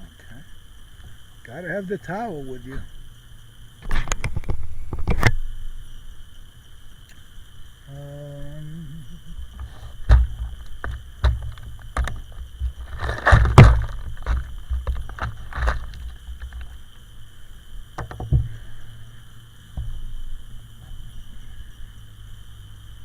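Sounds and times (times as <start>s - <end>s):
gear knocking and thumping: 9.5s - 16.8s.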